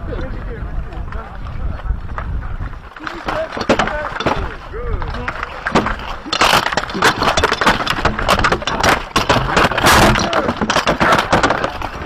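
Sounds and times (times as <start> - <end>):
weapons striking shields and armour: 3.0 - 12.0.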